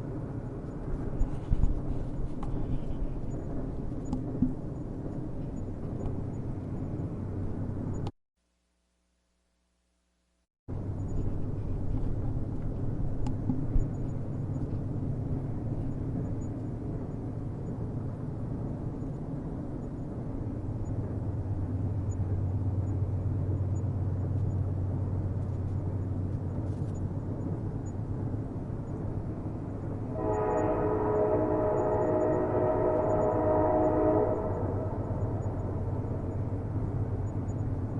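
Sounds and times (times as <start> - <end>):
train rumbling: 0.0 - 8.1, 10.7 - 37.9
train horn blast: 30.1 - 36.4.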